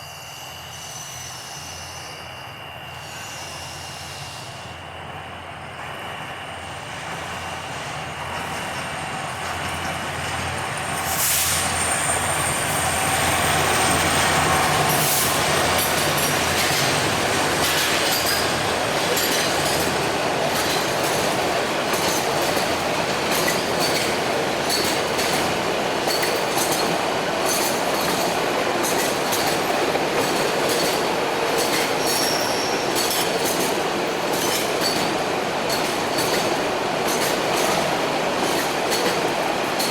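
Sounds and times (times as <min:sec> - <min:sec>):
diesel locomotive engine hum: 0:00.0 - 0:39.9
train wheels clattering over joints: 0:08.3 - 0:39.9
wheel squeal: 0:32.0 - 0:33.6.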